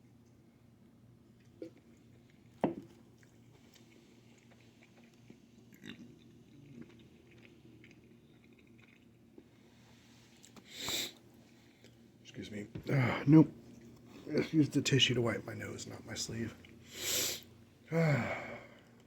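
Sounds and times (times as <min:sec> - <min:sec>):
person chewing pizza: 0:01.3 - 0:12.1, 0:16.5 - 0:16.9.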